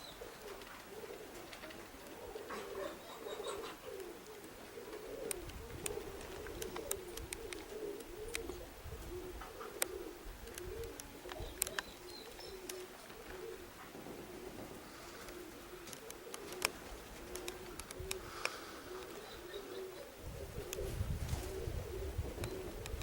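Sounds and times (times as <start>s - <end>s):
pigeons cooing: 0.0s - 23.0s
sharp clicks: 5.2s - 8.6s, 9.8s - 13.4s, 15.3s - 19.2s.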